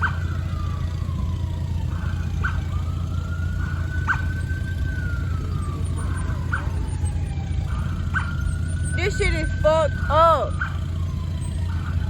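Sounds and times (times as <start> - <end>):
emergency vehicle siren wailing: 0.0 - 12.0
short siren chirps: 3.5 - 12.0.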